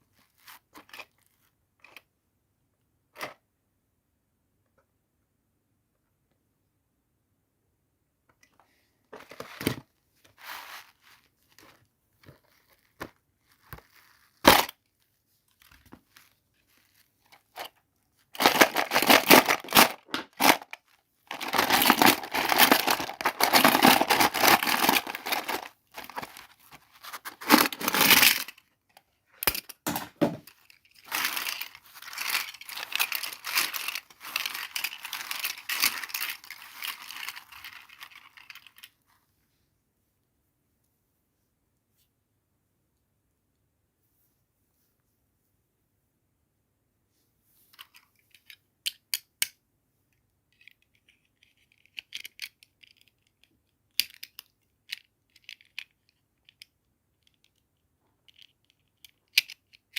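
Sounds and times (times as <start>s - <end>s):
plastic and paper crinkling: 9.2s - 28.7s, 29.4s - 39.2s
packaging taps and clicks: 18.4s - 26.5s.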